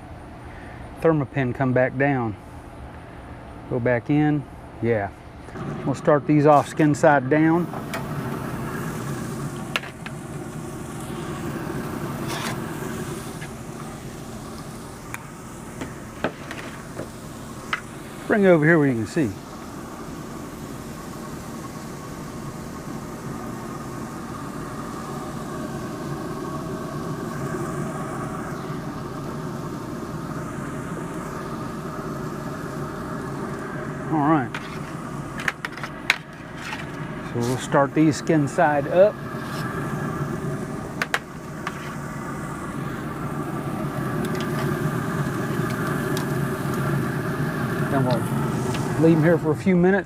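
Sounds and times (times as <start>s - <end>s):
grill rumbling hum: 0.0s - 50.0s.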